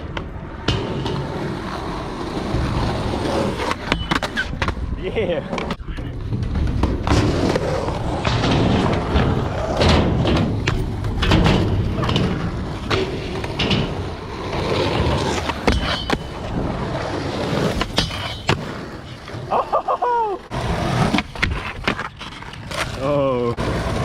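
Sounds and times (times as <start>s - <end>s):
skateboard clacks: 0.0s - 24.0s
skateboard wheels rolling on concrete: 0.0s - 24.0s.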